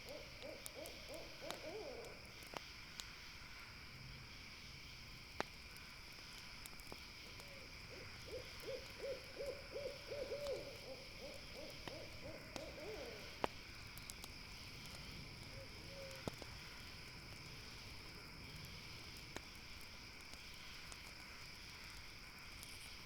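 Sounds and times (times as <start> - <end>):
owl hooting rapidly: 0.0 - 2.2, 7.9 - 13.4
campfire crackles: 0.0 - 23.0
insect chorus: 0.0 - 23.0.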